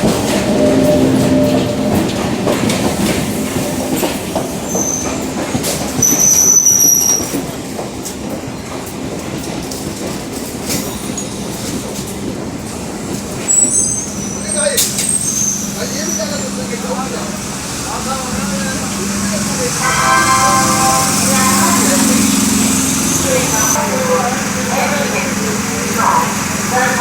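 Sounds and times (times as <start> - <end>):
train wheels rumbling on rails: 0.0 - 27.0
wheel squeals: 13.4 - 16.6.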